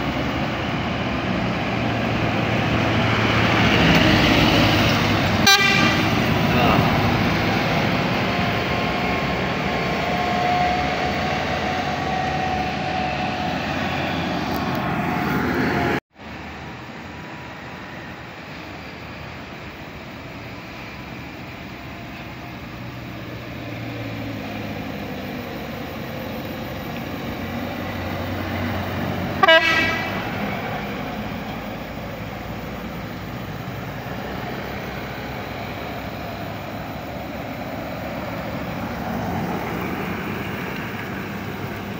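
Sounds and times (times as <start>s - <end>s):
buses and trucks passing: 0.0s - 41.9s
horn blast: 5.3s - 7.0s, 29.3s - 30.6s.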